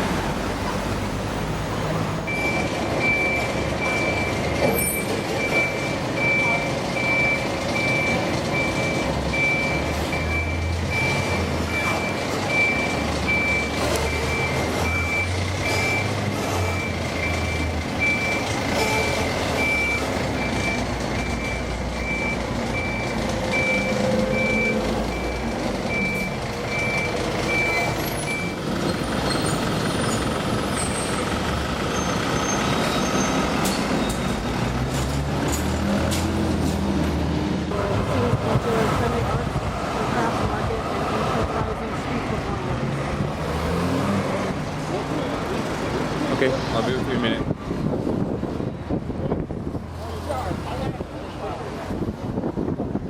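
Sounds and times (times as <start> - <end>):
reversing alarm beeps: 2.2 - 28.6
truck engine running: 37.6 - 43.8.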